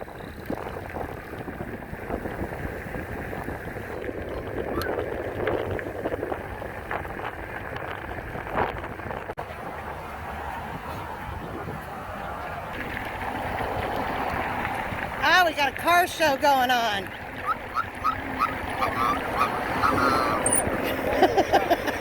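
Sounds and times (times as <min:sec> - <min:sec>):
wind on microphone: 0:00.0 - 0:09.4, 0:10.5 - 0:15.2
road traffic noise: 0:00.0 - 0:22.0.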